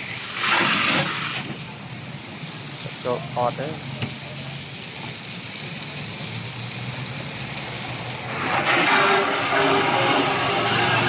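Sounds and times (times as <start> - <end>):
steady hissing noise: 0.0 - 8.6.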